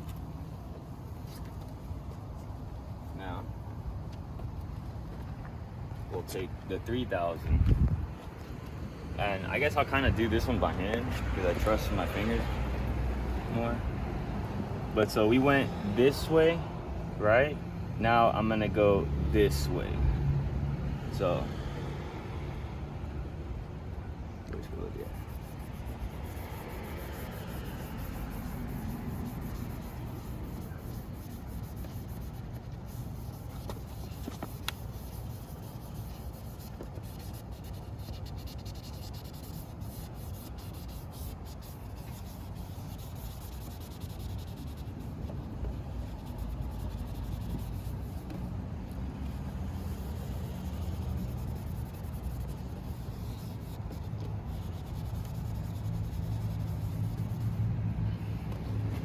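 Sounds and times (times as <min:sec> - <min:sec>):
sandpaper scrubbing plastic: 0:24.8 - 0:48.5, 0:49.2 - 0:57.6.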